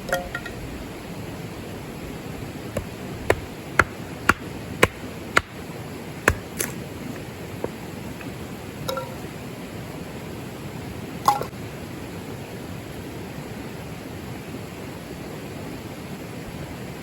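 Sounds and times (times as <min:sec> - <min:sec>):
sharp knocks: 0:02.8 - 0:05.6, 0:06.3 - 0:06.8.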